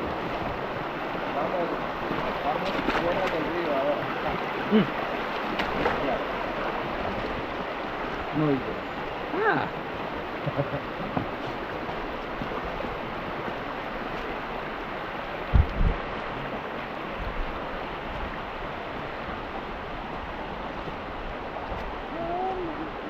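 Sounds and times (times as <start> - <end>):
stream water rushing: 0.0 - 23.0
deep thumps: 15.4 - 16.0.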